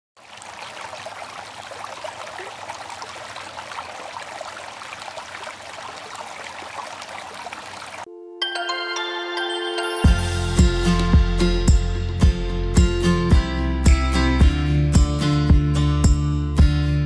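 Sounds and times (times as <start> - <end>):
fountain water splashing: 0.2 - 8.1
held music tones: 8.1 - 16.7.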